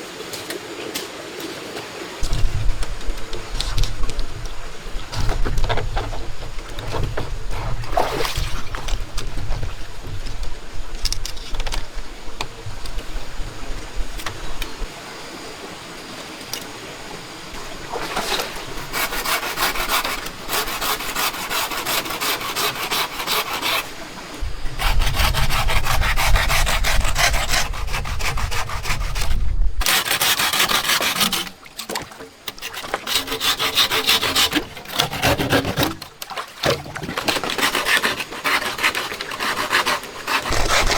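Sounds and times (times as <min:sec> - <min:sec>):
wood being rasped by hand: 0:17.8 - 0:31.6, 0:32.5 - 0:36.0, 0:37.2 - 0:40.9.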